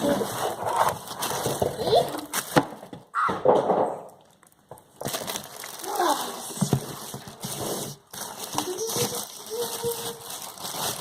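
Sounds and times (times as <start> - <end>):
packaging clicks and crackles: 8.1 - 11.0.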